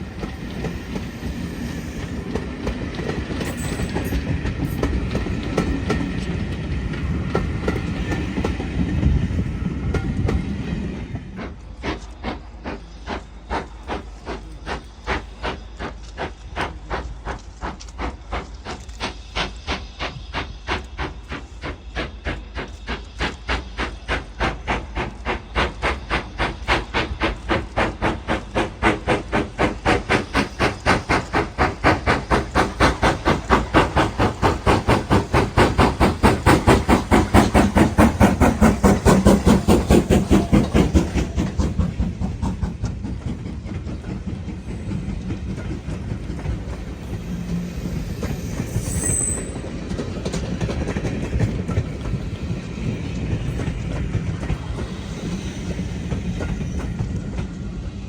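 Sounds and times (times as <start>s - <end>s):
steam locomotive exhaust beats: 0.0s - 58.0s.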